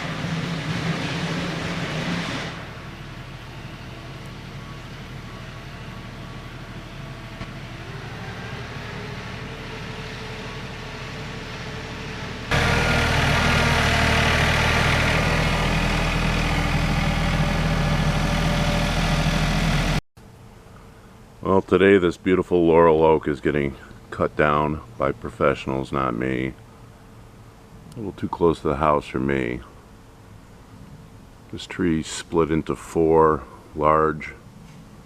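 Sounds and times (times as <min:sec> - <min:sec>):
engine running steadily: 0:00.0 - 0:22.9.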